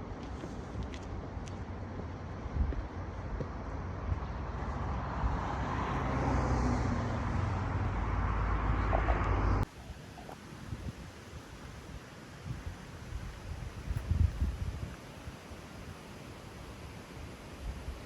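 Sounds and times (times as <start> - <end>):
low engine hum: 0.0 - 10.3
road noise: 0.0 - 15.4.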